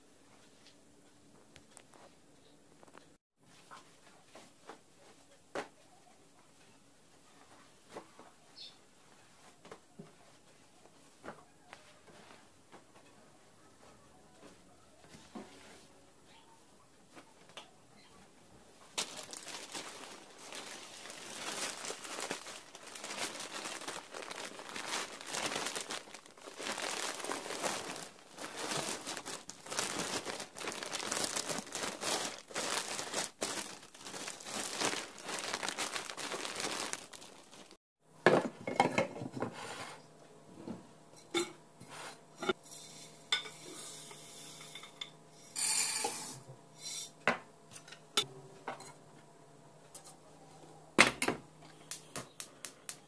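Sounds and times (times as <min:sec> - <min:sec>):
faint steady hum: 0:00.0 - 0:53.0
scraping and rustling: 0:18.9 - 0:37.8
dishes clinking and knocking: 0:38.2 - 0:39.5.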